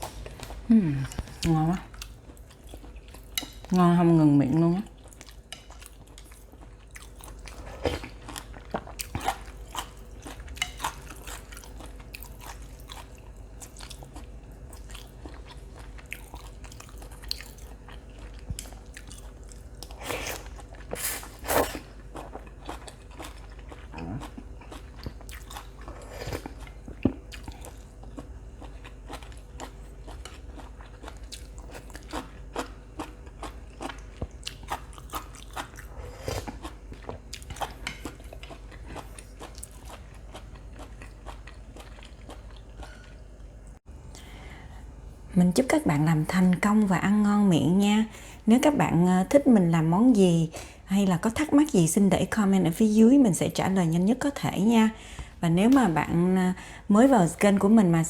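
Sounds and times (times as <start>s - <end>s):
person chewing and biting: 19.0s - 28.3s.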